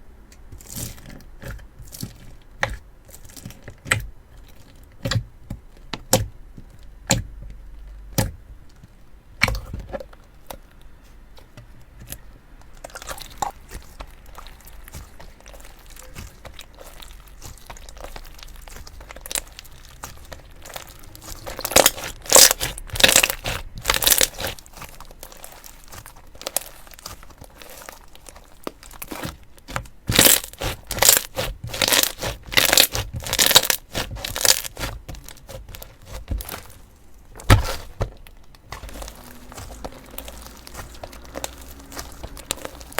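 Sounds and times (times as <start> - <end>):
slime squeezed by hand: 12.8 - 29.4, 30.1 - 36.8
slime crackling pops: 17.5 - 27.9, 29.0 - 36.7.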